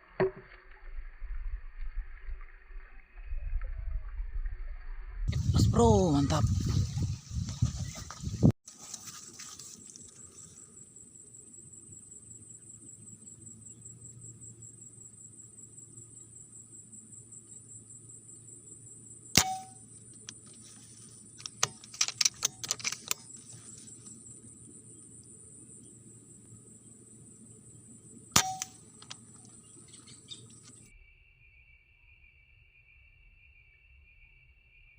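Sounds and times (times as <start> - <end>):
crickets droning: 0.0 - 34.9
air rifle shot: 19.4 - 19.7, 28.4 - 28.8.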